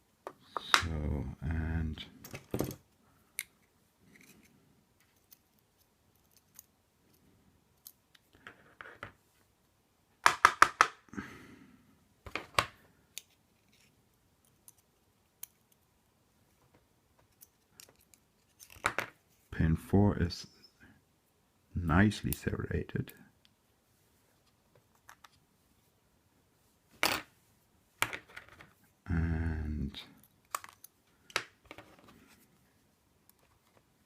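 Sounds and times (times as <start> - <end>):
small clicks and taps of lock parts: 3.3 - 7.2, 12.3 - 15.9, 17.2 - 19.0, 30.2 - 31.6.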